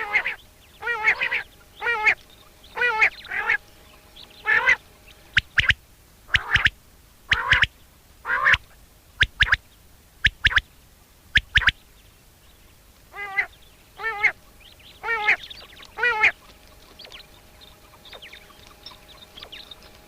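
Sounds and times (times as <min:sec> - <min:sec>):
quail calling: 0:00.0 - 0:09.6, 0:10.2 - 0:10.7, 0:11.3 - 0:11.8, 0:13.1 - 0:20.0
faint chirps: 0:11.3 - 0:20.0.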